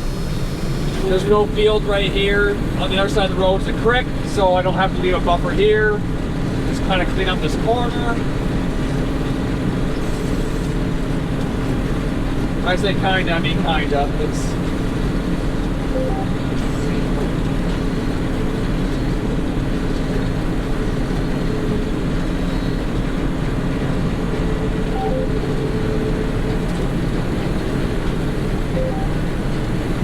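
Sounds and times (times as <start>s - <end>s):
combine harvester engine drone: 0.0s - 30.0s.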